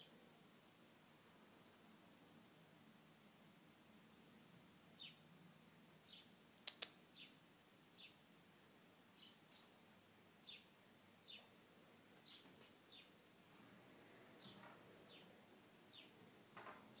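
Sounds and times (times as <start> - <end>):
faint bird chirps: 5.0 - 5.3, 6.0 - 8.2, 9.1 - 9.7, 10.4 - 11.6, 12.2 - 13.2, 14.3 - 16.2
sharp clicks: 6.6 - 7.0.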